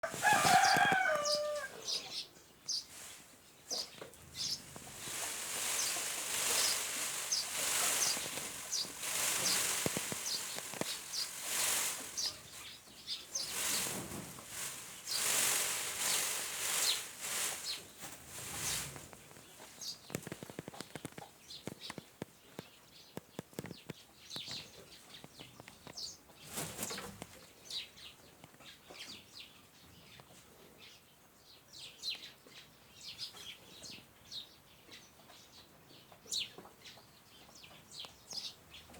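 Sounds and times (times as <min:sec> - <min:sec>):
feathers rustling: 0:00.0 - 0:01.6, 0:04.4 - 0:20.9.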